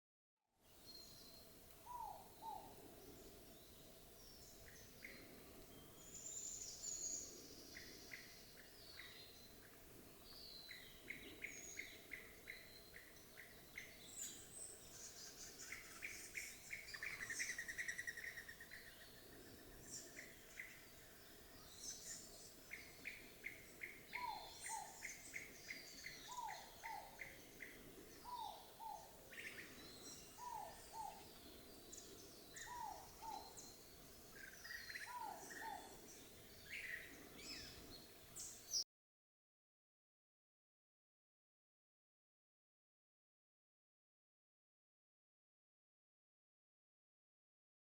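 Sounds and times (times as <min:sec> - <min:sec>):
small birds chirping and trilling: 0:00.7 - 0:38.8
dove cooing: 0:24.1 - 0:31.4, 0:32.6 - 0:33.6, 0:34.9 - 0:36.0.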